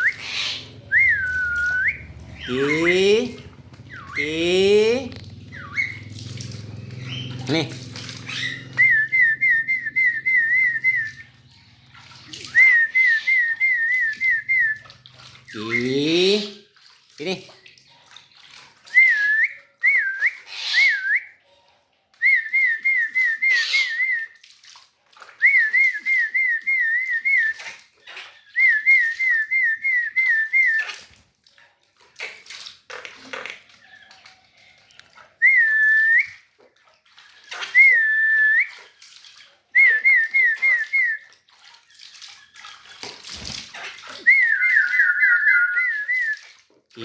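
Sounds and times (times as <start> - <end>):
water splashing: 0.0 - 21.4, 22.2 - 47.0
quick repeated whistled notes: 0.8 - 3.2, 8.2 - 11.3.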